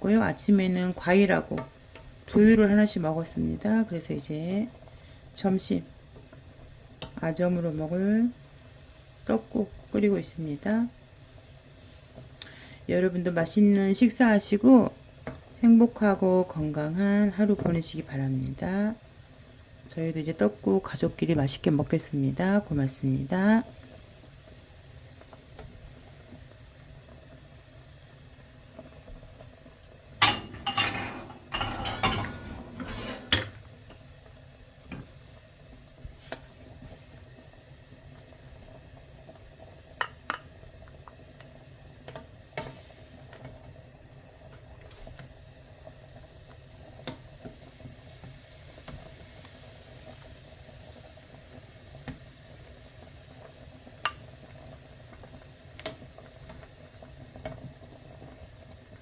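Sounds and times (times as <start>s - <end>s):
dishes and utensils clinking: 30.2s - 33.6s.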